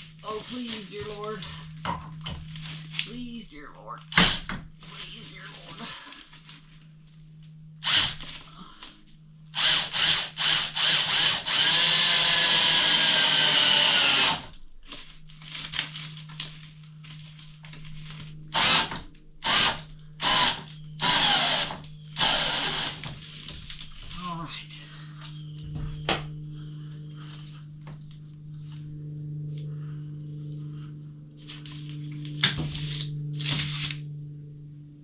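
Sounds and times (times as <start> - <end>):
power drill driving screw into wood: 7.8 - 8.2, 9.6 - 14.5, 18.5 - 23.0.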